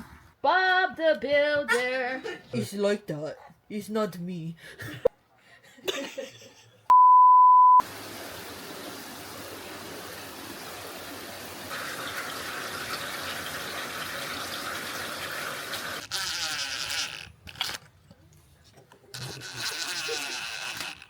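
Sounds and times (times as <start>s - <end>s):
water rushing: 7.8s - 16.0s.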